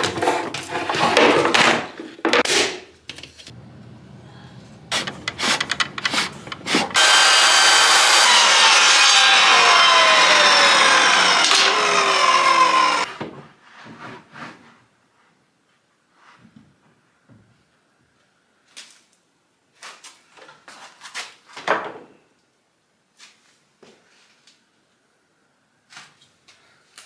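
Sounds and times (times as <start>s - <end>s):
wood scraping and knocking: 3.2s - 13.0s
power tool cutting wood: 3.5s - 13.1s.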